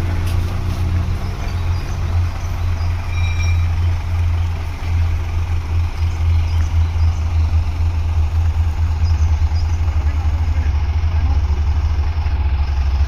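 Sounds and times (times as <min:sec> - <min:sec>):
truck diesel engine rumbling: 0:00.0 - 0:13.0
brief high tone: 0:03.1 - 0:03.8.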